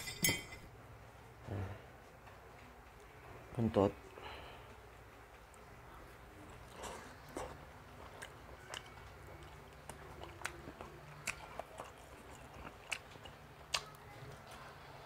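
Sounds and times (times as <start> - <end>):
crunchy chewing: 6.4 - 14.2.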